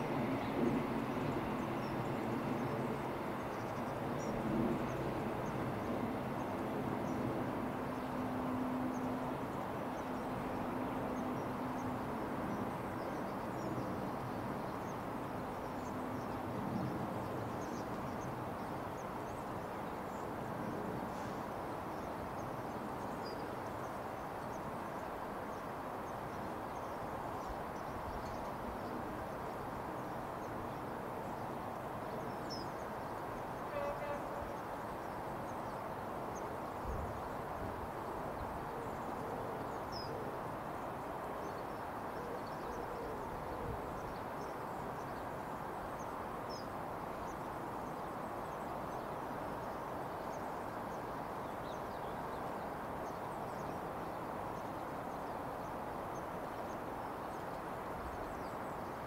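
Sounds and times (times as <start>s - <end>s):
distant freight train rumble: 0.0s - 22.0s, 29.9s - 37.3s.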